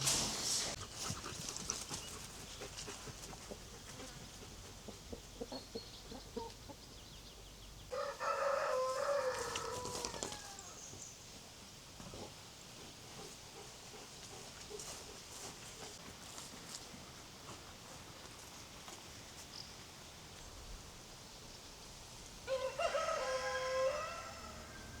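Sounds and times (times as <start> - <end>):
rooster crowing: 7.9 - 10.8, 22.5 - 25.0.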